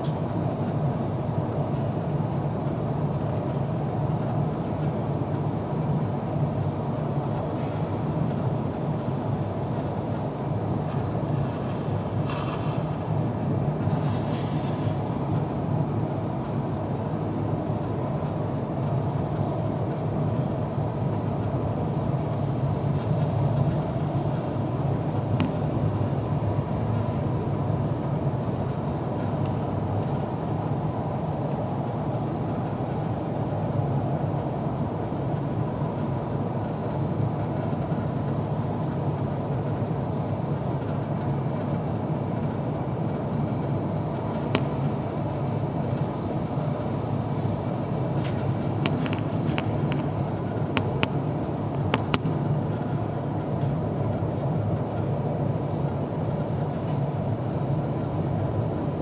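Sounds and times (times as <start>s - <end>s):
airflow rush in cabin: 0.0s - 59.0s.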